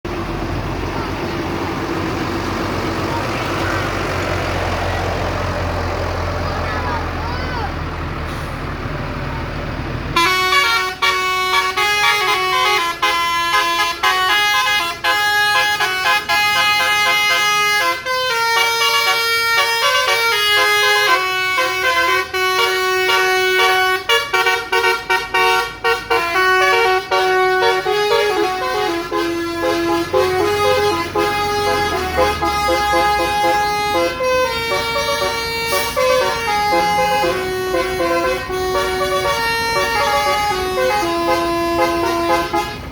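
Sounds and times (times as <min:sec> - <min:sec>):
horn playing a tune: 0:10.2 - 0:42.9.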